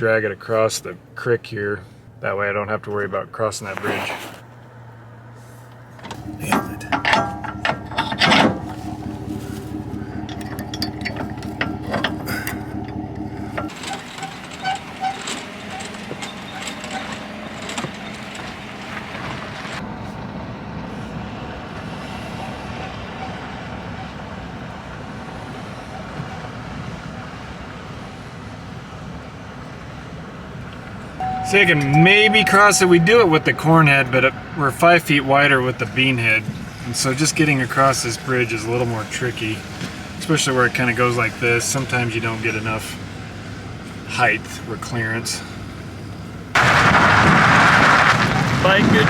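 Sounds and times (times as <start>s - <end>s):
combine engine running: 5.9s - 19.8s
knocks and clanks: 5.9s - 19.8s.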